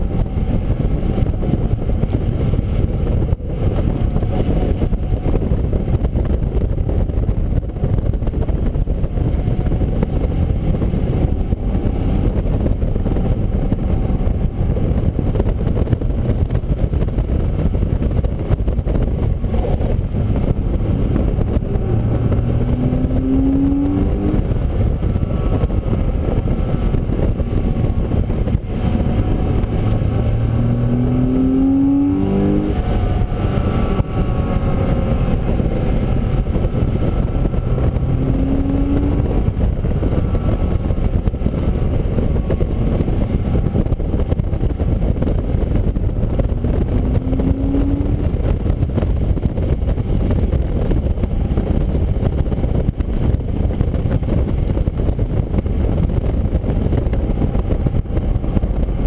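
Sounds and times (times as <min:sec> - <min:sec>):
wind and road noise: 0:00.0 - 0:59.0
race car engine accelerating: 0:17.4 - 0:50.8.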